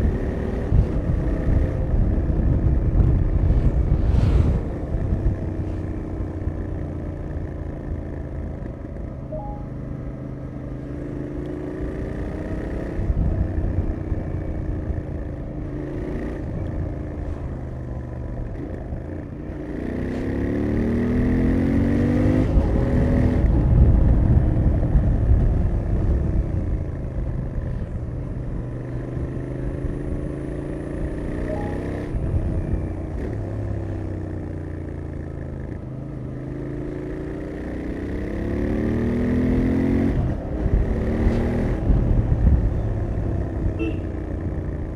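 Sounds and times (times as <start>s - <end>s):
motorcycle engine accelerating: 0.0s - 44.9s.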